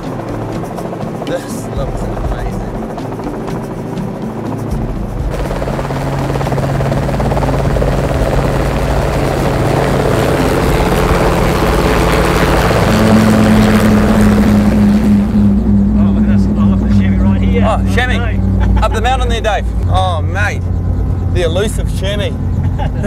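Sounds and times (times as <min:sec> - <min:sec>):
higher tone: 0:00.0 - 0:22.7
helicopter rotor and engine: 0:00.0 - 0:23.0
steady low hum: 0:00.0 - 0:23.0.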